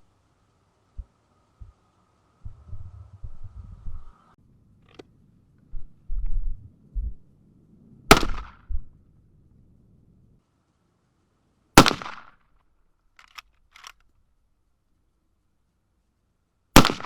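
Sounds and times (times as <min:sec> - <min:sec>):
rifle shots with echo: 0:08.1 - 0:08.7, 0:11.8 - 0:12.4, 0:16.8 - 0:17.0.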